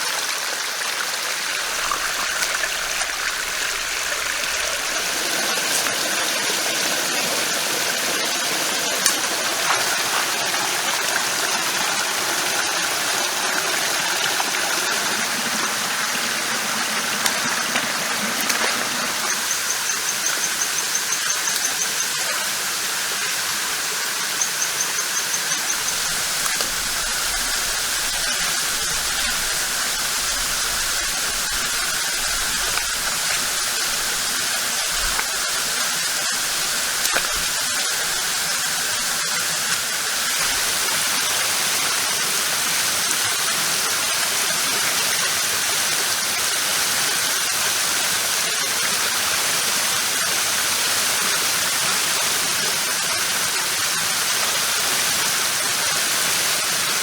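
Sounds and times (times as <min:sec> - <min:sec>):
stream rushing: 0:00.0 - 0:21.6, 0:25.0 - 0:47.8.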